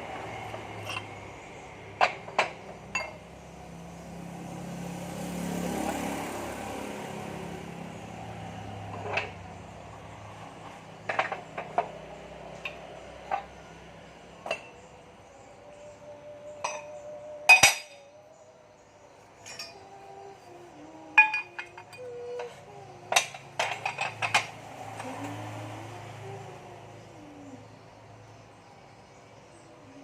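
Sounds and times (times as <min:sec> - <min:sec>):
metal tools clinking: 0:00.4 - 0:01.2, 0:02.0 - 0:03.3, 0:16.6 - 0:18.1, 0:19.4 - 0:19.9, 0:21.2 - 0:24.6.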